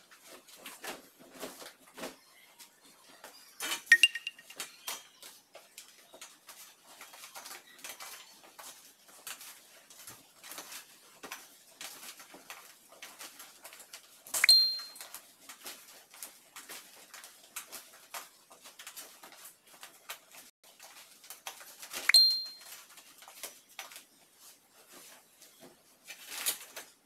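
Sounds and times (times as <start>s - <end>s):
sharp metallic clink: 3.9s - 4.6s, 14.4s - 15.0s, 22.1s - 22.6s.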